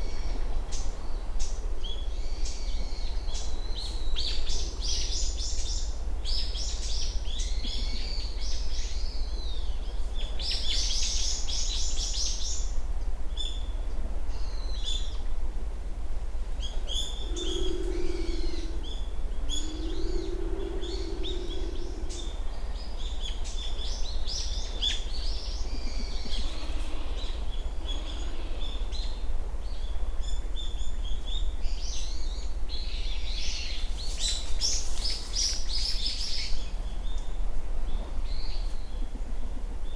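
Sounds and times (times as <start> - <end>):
low background rumble: 0.0 - 39.9
small birds chirping: 16.6 - 37.3.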